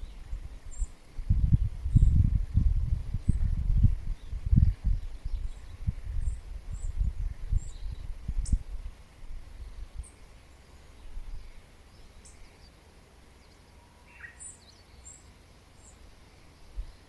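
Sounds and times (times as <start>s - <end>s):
birds chirping: 10.0s - 17.0s.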